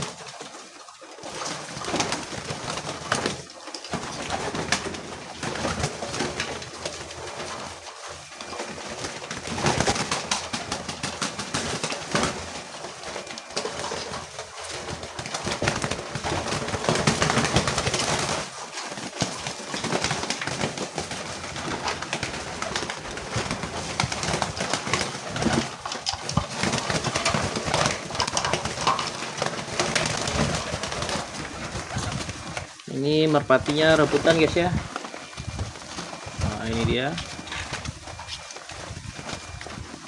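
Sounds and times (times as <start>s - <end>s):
pigeons cooing: 20.9s - 40.0s.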